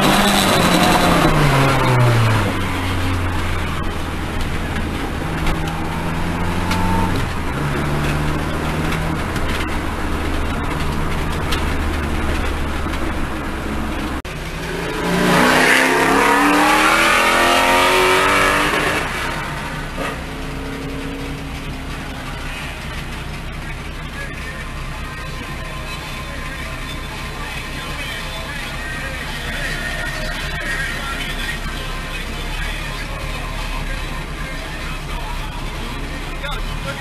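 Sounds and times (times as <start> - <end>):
car engine from inside cabin: 0.0 - 37.0.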